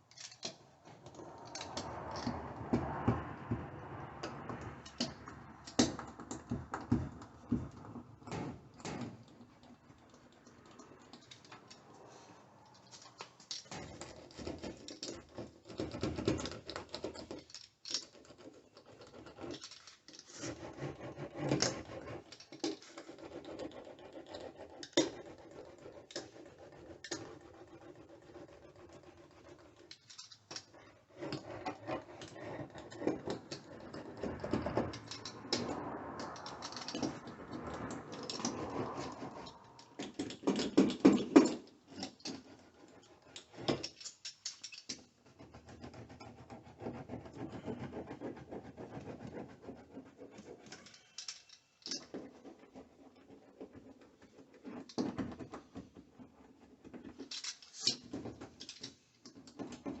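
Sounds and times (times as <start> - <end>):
hands scratching and rustling: 0.0 - 6.4, 9.2 - 60.0.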